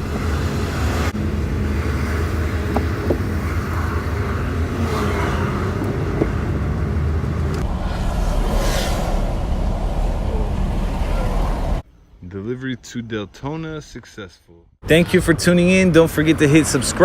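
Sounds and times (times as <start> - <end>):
vehicle engine and tyre rumble: 0.0 - 12.3.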